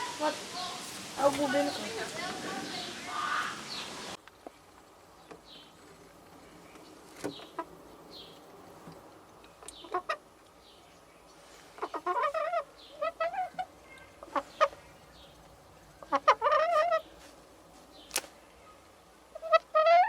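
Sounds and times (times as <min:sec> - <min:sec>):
chickens squawking: 0:00.0 - 0:04.2, 0:09.8 - 0:10.3, 0:11.8 - 0:15.0, 0:15.9 - 0:17.2, 0:19.3 - 0:20.0.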